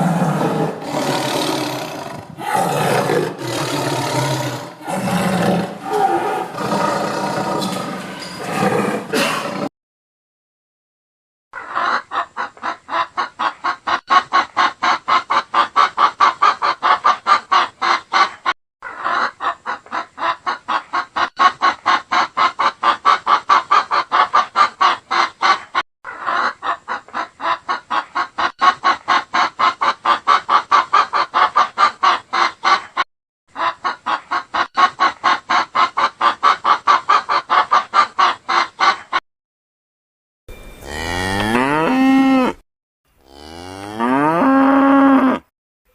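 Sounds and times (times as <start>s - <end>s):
chicken clucking: 11.6s - 33.0s, 33.6s - 39.2s
cow mooing: 40.8s - 42.6s, 43.2s - 45.4s.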